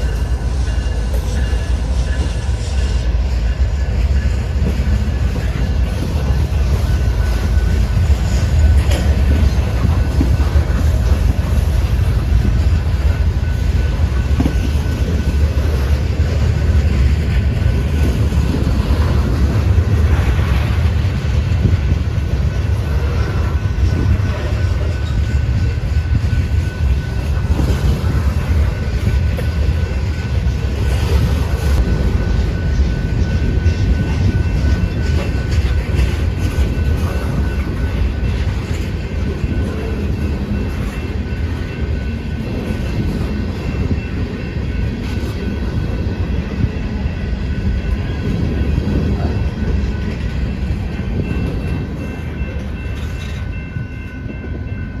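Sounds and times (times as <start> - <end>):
freight train rumbling: 0.0 - 55.0
wheels clacking over rail joints: 4.0 - 43.7.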